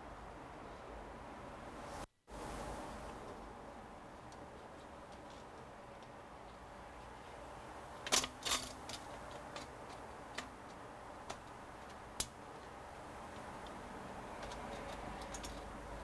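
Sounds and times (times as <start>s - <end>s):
small hardware parts clicking: 14.4s - 15.8s.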